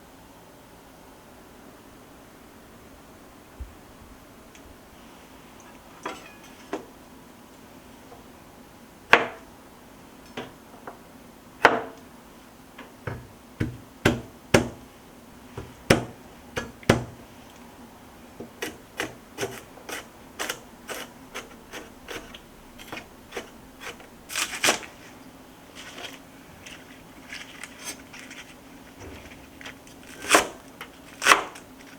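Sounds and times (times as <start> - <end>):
kitchen utensils knocking: 6.0 - 6.9.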